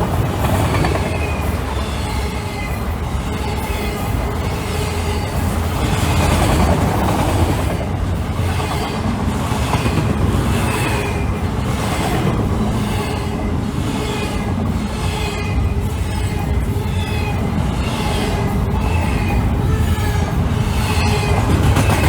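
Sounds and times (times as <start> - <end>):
freight train rumbling past: 0.0 - 22.0
wheels clattering over rails: 20.6 - 22.0.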